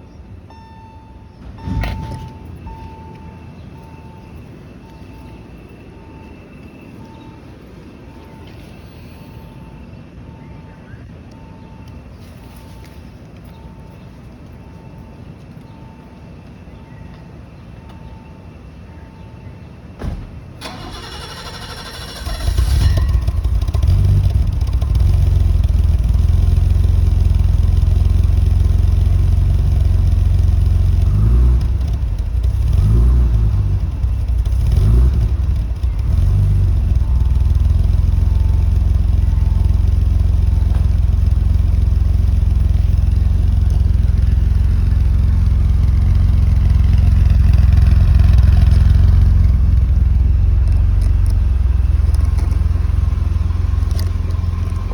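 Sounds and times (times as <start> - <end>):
car engine cranking: 20.6 - 54.9
car engine idling and revving: 20.6 - 54.9.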